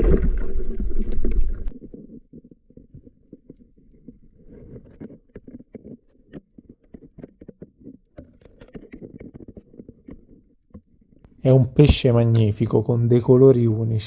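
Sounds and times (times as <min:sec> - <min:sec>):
muffled underwater water rumble: 0:00.0 - 0:02.4.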